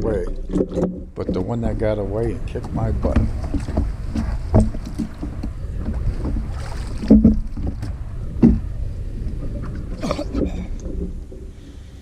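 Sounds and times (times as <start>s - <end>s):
short knocks: 0.0s - 8.7s
wind buffeting microphone: 0.0s - 12.0s.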